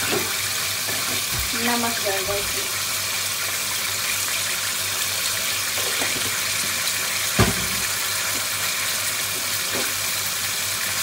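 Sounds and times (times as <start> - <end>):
bones sizzling in hot oil: 0.0 - 11.0
knock: 7.4 - 7.8.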